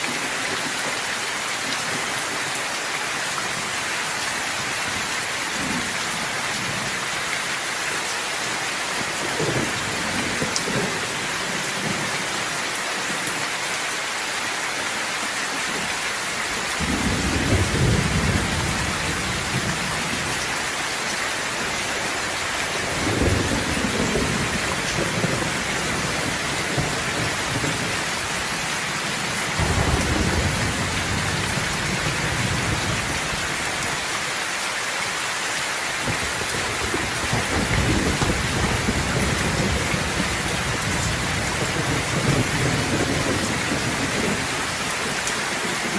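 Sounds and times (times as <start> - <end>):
steady rain hissing: 0.0 - 45.9
rolling thunder: 16.8 - 20.6, 22.4 - 28.0, 29.6 - 33.7, 36.1 - 44.8.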